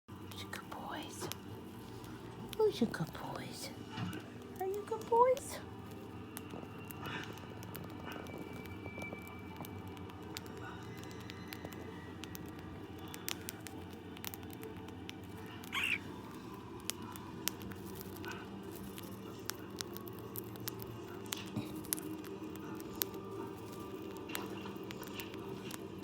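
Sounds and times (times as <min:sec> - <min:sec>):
low room hum: 0:00.1 - 0:26.0
claws and beaks tapping: 0:00.2 - 0:26.0
bird chirp: 0:15.7 - 0:16.1.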